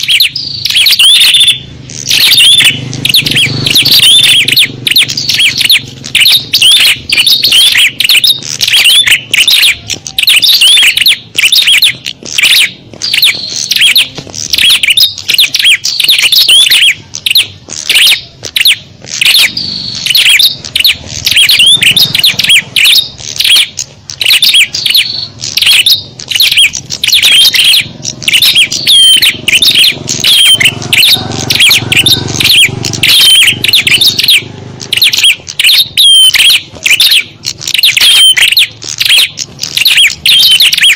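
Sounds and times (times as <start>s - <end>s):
songbirds chirping and twittering: 0.0s - 40.9s.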